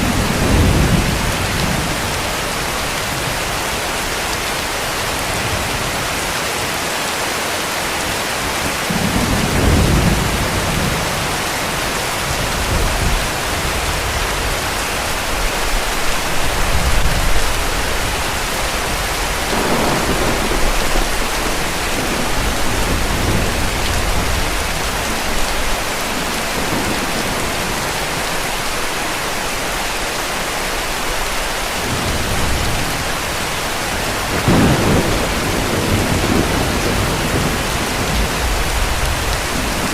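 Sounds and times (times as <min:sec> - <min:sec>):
distant thunder rumbling: 0:00.0 - 0:03.4, 0:16.4 - 0:28.9, 0:31.8 - 0:39.9
heavy rain hissing: 0:00.0 - 0:39.9.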